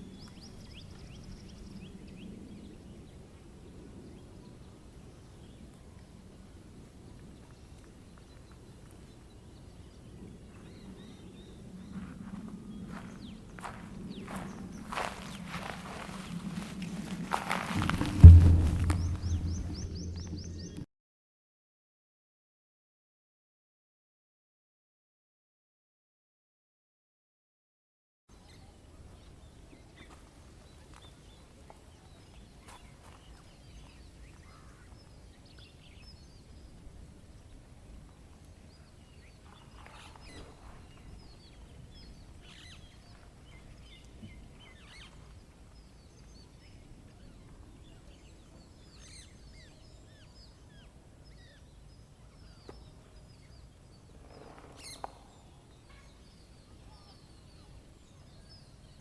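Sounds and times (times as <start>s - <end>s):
low outdoor rumble: 0.0s - 20.8s
wild birds chirping: 0.0s - 20.8s, 28.4s - 59.0s.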